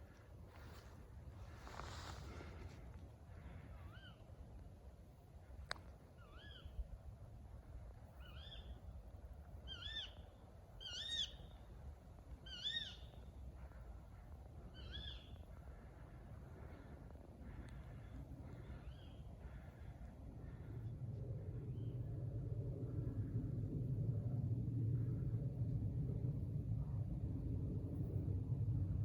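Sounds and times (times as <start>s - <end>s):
faint low rumble: 0.0s - 29.0s
owl calls: 3.7s - 4.2s, 6.2s - 6.8s, 9.7s - 11.6s, 12.4s - 13.2s, 14.7s - 15.5s.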